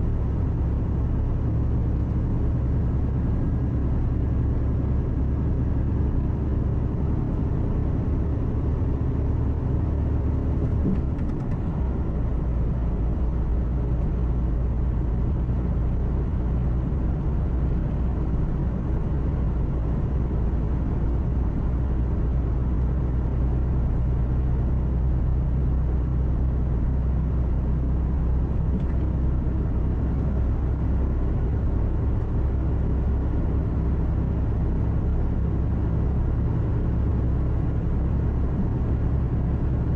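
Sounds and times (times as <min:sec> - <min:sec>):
truck engine hum in cab: 0:00.0 - 0:39.9
tyre and road noise: 0:09.6 - 0:14.5.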